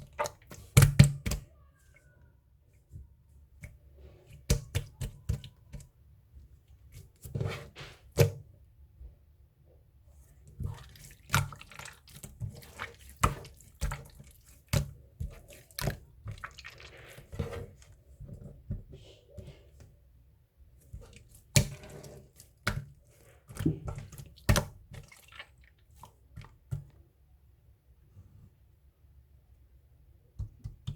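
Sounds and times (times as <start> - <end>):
slime squelching: 0.0 - 2.2, 10.4 - 19.8, 20.8 - 26.8.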